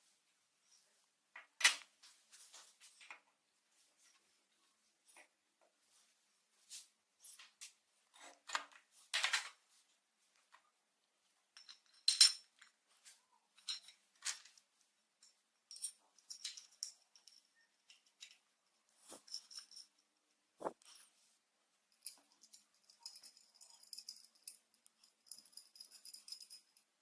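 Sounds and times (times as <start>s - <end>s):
small metal parts clinking: 11.6s - 12.7s, 13.6s - 14.5s, 15.2s - 20.0s, 22.0s - 26.8s.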